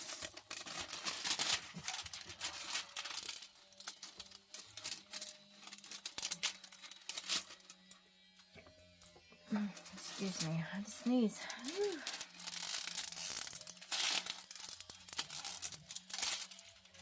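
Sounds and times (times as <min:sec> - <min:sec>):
plastic rustling and crinkling: 0:00.0 - 0:08.4, 0:09.2 - 0:17.0.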